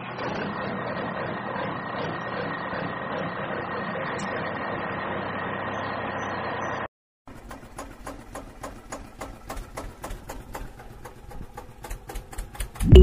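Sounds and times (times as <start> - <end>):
fast rattly clicking engine: 0.0 - 5.6, 7.3 - 12.9
truck engine idling: 0.0 - 12.9.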